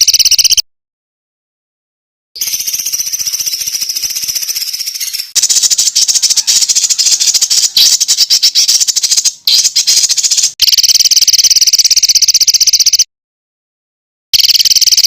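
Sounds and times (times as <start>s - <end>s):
fast buzzing bird trill: 0.0s - 0.6s, 2.4s - 13.1s, 14.4s - 15.0s
songbird harsh rapid chatter: 2.4s - 10.6s.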